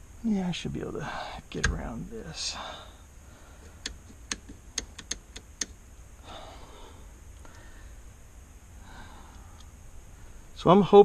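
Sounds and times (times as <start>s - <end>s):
soft breaths: 2.2s - 4.2s, 6.1s - 10.7s
sharp clicks and taps of parts: 3.6s - 5.8s.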